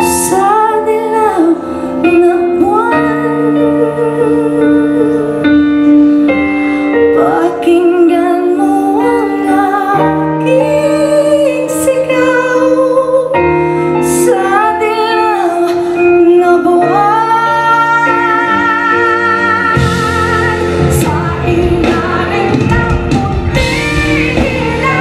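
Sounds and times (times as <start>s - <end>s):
woman singing a slow ballad: 0.0s - 25.0s
band accompaniment: 17.9s - 25.0s.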